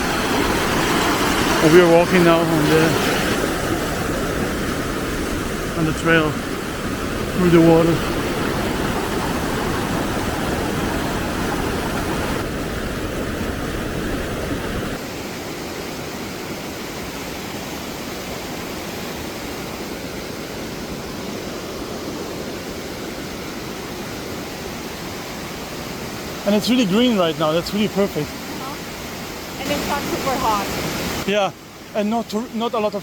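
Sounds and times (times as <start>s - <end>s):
waterfall rushing: 0.0s - 15.4s, 23.8s - 33.0s.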